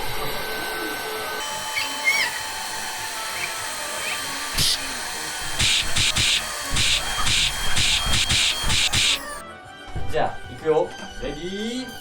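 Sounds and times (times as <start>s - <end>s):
electric air pump running: 0.0s - 9.4s
short hissing bursts: 5.6s - 9.4s.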